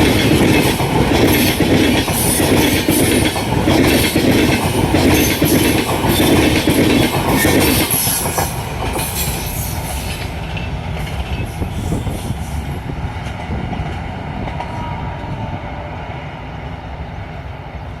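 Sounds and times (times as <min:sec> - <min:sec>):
train wheels clattering over rails: 0:00.0 - 0:14.8.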